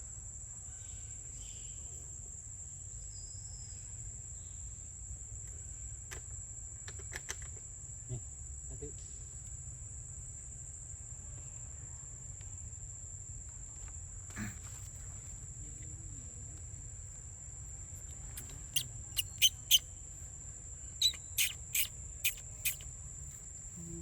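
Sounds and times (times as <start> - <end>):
short sharp high chirps: 18.4 - 19.8, 21.0 - 22.8
high-pitched insect drone: 18.4 - 19.9, 21.0 - 22.9.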